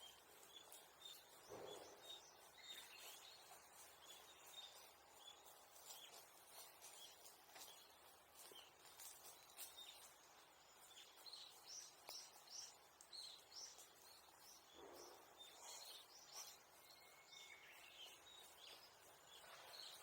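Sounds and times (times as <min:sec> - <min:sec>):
small bird chirping: 0:00.0 - 0:20.0
faint ticks: 0:05.8 - 0:14.1.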